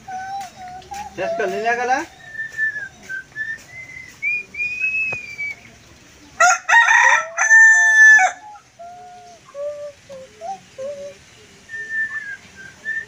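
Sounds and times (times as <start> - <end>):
thin gliding whistles: 0.0 - 5.8, 8.4 - 13.0
rooster crowing: 6.4 - 8.6.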